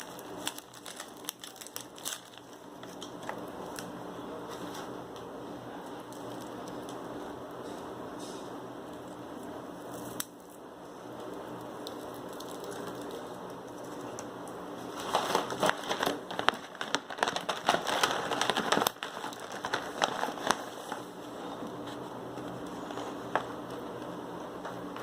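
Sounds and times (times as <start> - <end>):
plastic packaging crinkling: 0.0 - 4.9, 5.8 - 7.0, 11.6 - 25.0.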